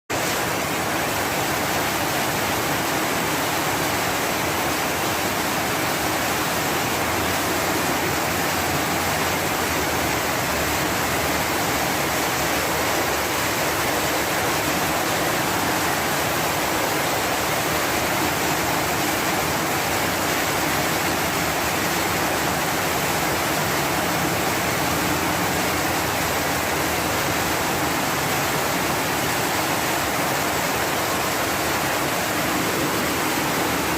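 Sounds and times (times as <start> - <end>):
heavy rain: 0.1 - 33.9.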